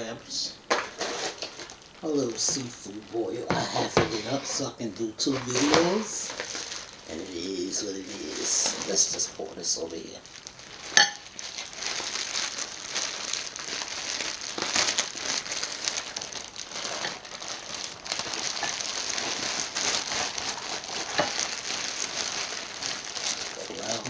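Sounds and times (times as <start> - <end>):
takeout packaging crinkling: 0.7 - 24.0.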